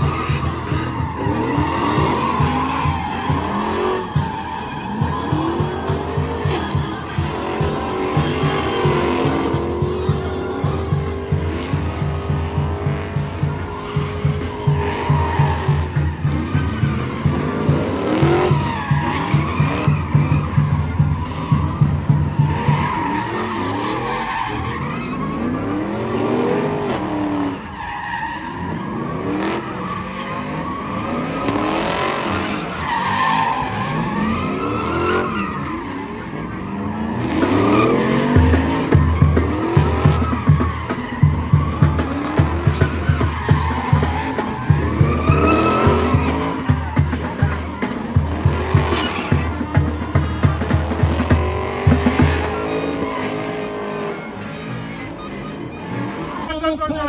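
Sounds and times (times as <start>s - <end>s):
engine revving: 0.0s - 4.3s, 4.9s - 27.5s, 28.6s - 56.5s
tires squealing: 0.0s - 57.0s
music with steady beat: 37.4s - 52.6s.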